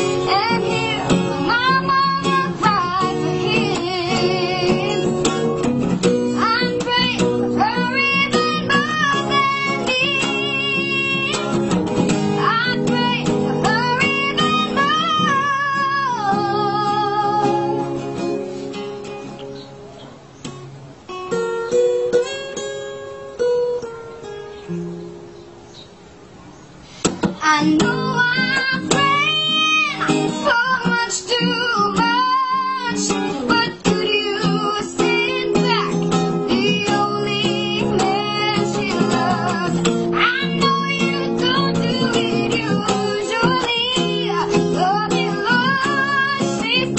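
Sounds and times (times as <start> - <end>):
child singing: 0.0 - 5.4, 6.4 - 11.5, 12.4 - 17.9, 27.4 - 46.9
acoustic guitar: 0.0 - 46.9.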